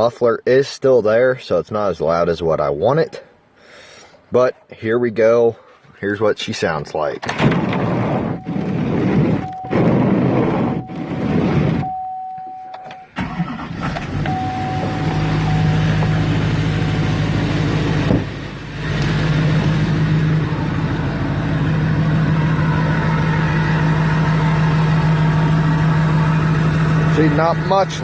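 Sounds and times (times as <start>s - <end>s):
diesel engine starting and idling: 7.3s - 28.0s
steady beeping tone: 8.3s - 12.9s, 14.3s - 17.8s.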